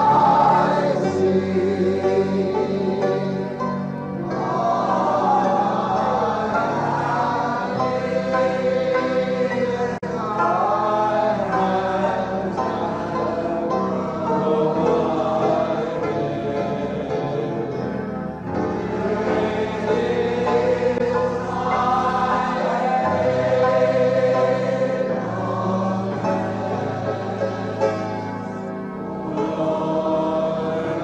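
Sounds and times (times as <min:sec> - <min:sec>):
choir singing gospel song: 0:00.0 - 0:31.0.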